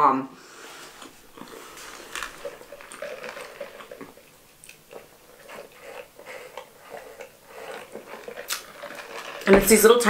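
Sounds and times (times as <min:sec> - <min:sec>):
sipping through a straw: 0:00.4 - 0:10.0
quiet chewing: 0:00.5 - 0:10.0
wet mouth clicks: 0:01.0 - 0:09.5.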